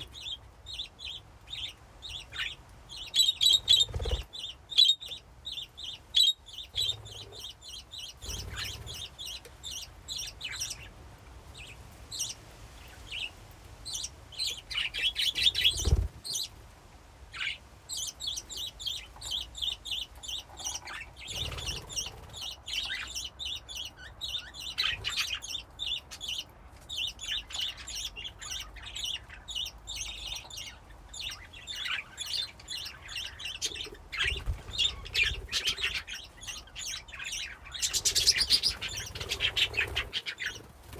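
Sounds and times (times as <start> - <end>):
budgerigars chirping and warbling: 0.0 - 16.6, 17.3 - 40.9.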